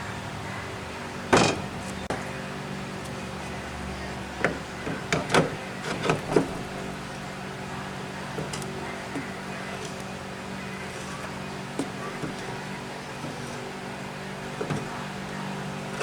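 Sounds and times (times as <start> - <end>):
steady background hum: 0.0 - 16.0
loud clunk: 1.3 - 1.9
short knocks and scrapes: 4.4 - 7.0.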